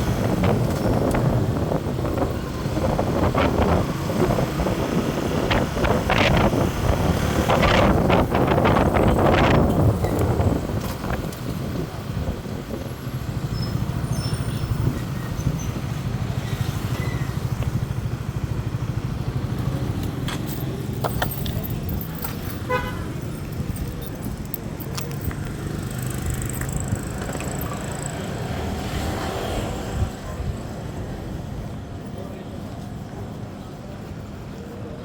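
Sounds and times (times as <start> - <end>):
road noise: 0.0 - 35.0
vehicle engine hum: 0.0 - 35.0
light clicks and rattles: 19.6 - 28.2.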